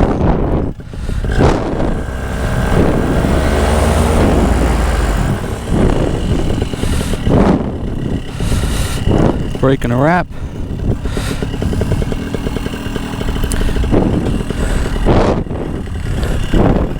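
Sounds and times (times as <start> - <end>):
motor vehicle passing by: 0.7 - 9.6.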